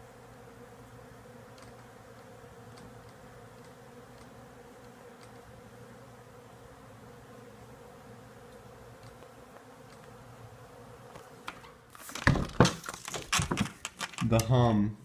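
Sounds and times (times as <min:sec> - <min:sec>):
bees humming: 0:00.0 - 0:14.4
faint ticks: 0:01.5 - 0:05.5, 0:08.5 - 0:10.2.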